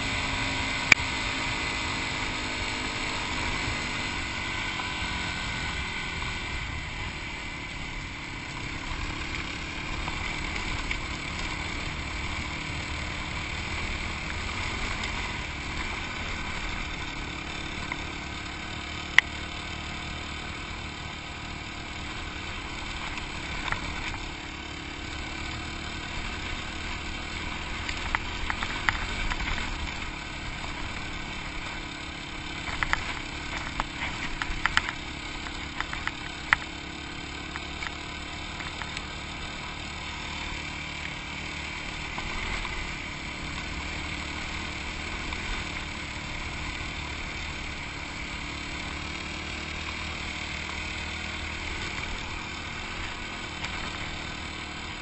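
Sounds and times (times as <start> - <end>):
motorcycle engine running: 0.0 - 55.0
sharp clicks and knocks: 32.6 - 36.8.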